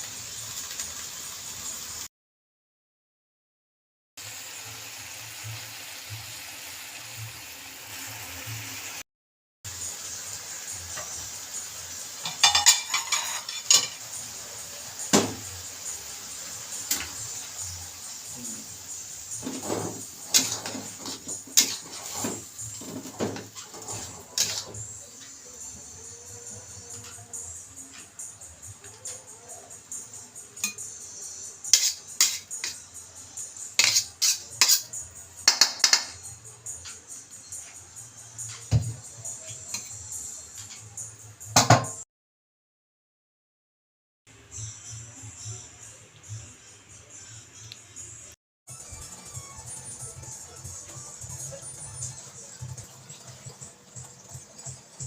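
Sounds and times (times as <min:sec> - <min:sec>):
dishes and cutlery clattering: 0:12.2 - 0:14.0, 0:19.4 - 0:24.8, 0:33.8 - 0:37.7
dish set down with knock: 0:15.1 - 0:15.4, 0:41.6 - 0:42.0.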